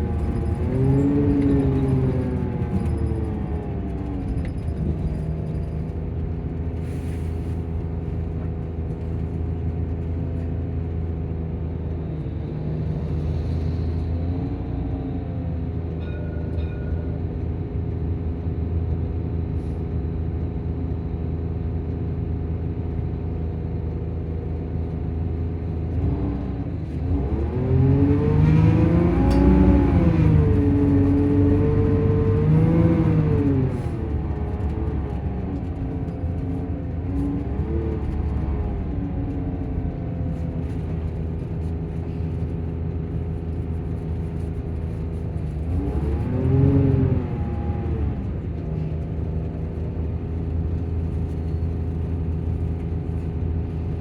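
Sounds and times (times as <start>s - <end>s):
engine cooling fan: 0.0s - 16.8s, 19.4s - 54.0s
coach engine running: 0.0s - 54.0s.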